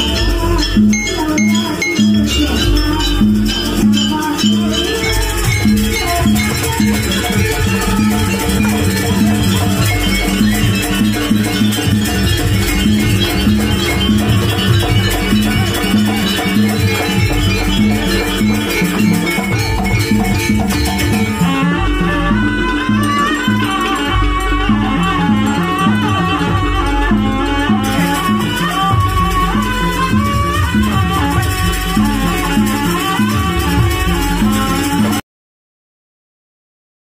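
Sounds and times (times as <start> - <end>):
live ensemble music: 0.0 - 35.2
pulsing percussion beat: 0.0 - 35.2.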